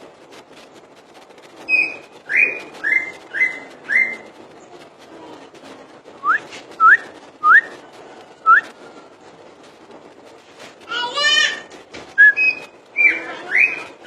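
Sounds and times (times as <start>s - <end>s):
bird whistling: 1.7s - 4.3s, 6.2s - 7.8s, 8.4s - 8.7s, 12.2s - 14.0s.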